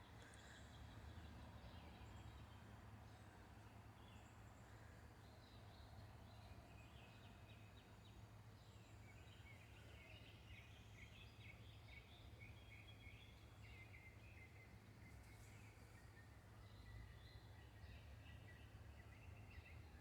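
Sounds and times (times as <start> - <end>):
faint birds chirping: 0.0 - 20.0.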